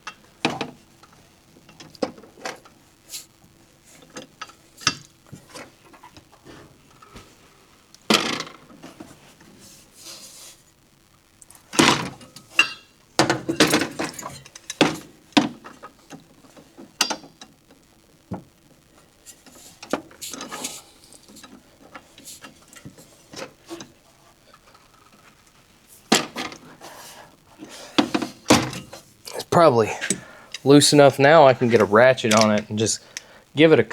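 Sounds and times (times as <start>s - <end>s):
metallic clanks of breaker bar: 11.8s - 15.6s, 17.0s - 17.3s, 28.0s - 29.0s.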